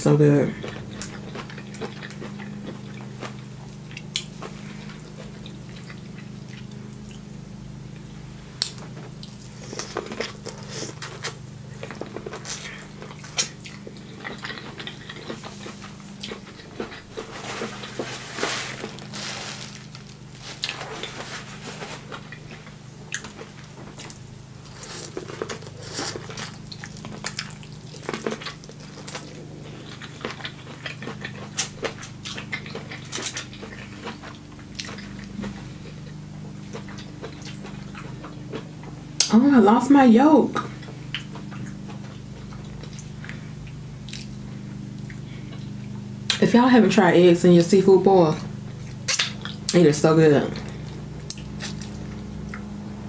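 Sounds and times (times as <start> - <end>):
steady low hum: 0.0 - 53.0
wet chewing and lip smacking: 0.6 - 7.3, 8.6 - 18.0, 22.1 - 39.4, 40.6 - 46.4, 48.9 - 49.8, 50.6 - 52.7.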